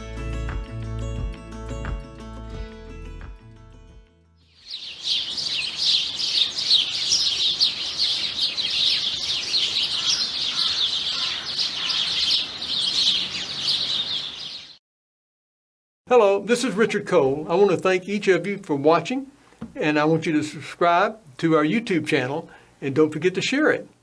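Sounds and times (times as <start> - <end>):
songbirds chirping: 4.4 - 14.8, 16.2 - 23.9.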